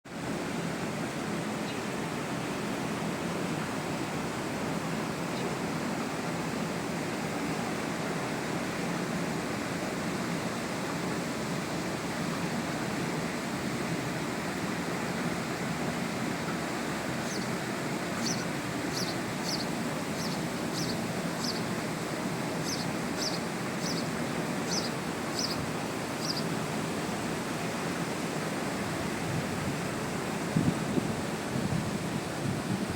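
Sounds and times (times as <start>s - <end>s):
small waterfall rushing: 0.1s - 32.9s
bird chirping: 17.2s - 17.5s, 18.2s - 21.7s, 22.6s - 25.6s, 26.2s - 26.5s.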